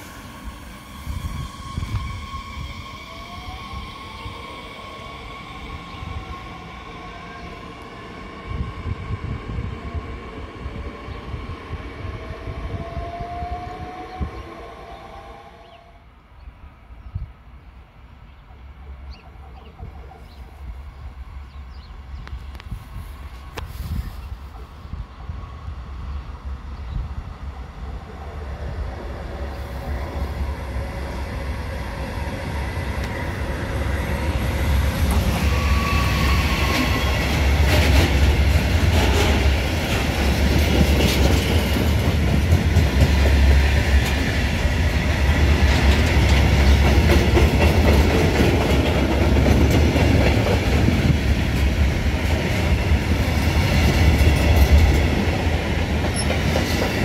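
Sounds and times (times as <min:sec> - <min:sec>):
train wheel squeal: 0:00.0 - 0:07.6, 0:34.2 - 0:38.0, 0:56.0 - 0:57.0
freight train rumbling past: 0:00.0 - 0:17.0, 0:17.8 - 0:57.0.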